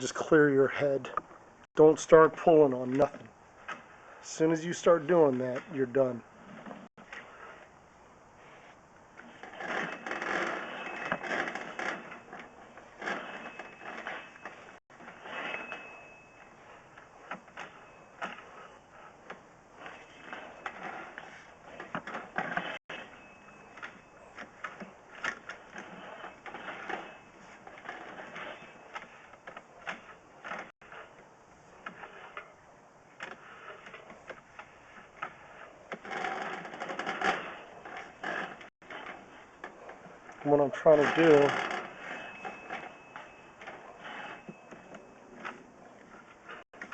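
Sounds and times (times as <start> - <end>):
steel cable rattling in drain pipe: 40.0 - 44.8.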